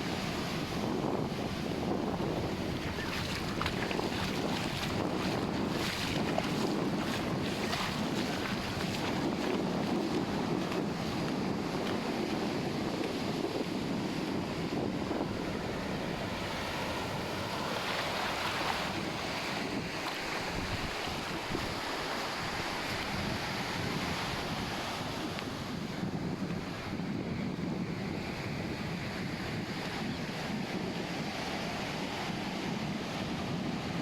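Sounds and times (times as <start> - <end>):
ocean surf breaking: 0.0 - 12.1
wind buffeting microphone: 0.0 - 34.0.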